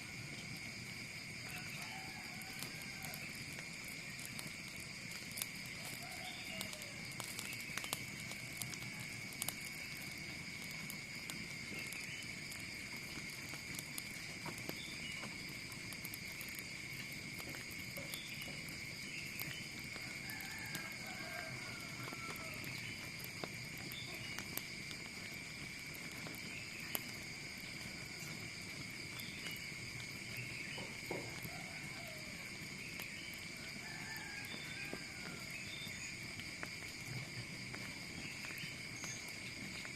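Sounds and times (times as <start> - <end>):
insect chorus: 0.0 - 39.9
sharp clicks and crackles: 2.5 - 18.7.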